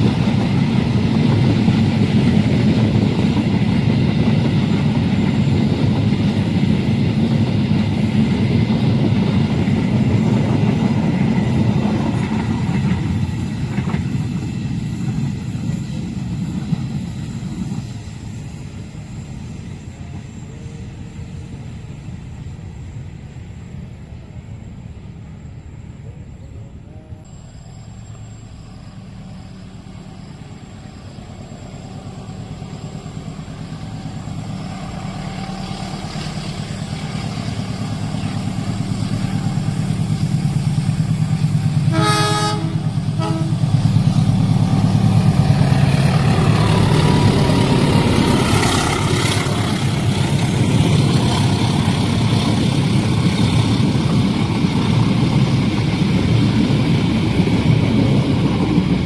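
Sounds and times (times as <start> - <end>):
train approaching: 0.0 - 59.0
train wheels on rails: 0.0 - 59.0
train horn: 41.8 - 44.0.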